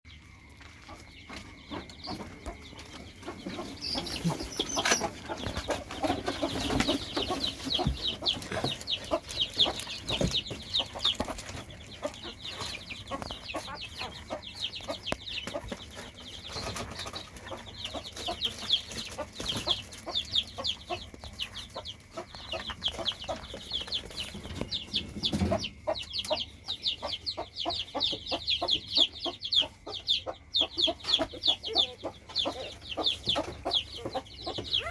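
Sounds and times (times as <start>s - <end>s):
young animal squeaking: 29.5s - 34.9s.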